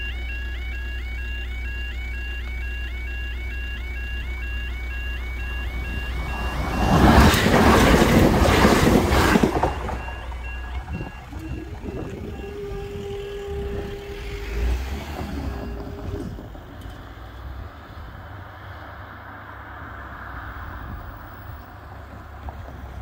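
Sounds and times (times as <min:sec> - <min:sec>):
level crossing alarm tones: 0:00.0 - 0:16.8
steady hum of barriers rising: 0:00.6 - 0:23.0
train passing at speed: 0:05.2 - 0:23.0.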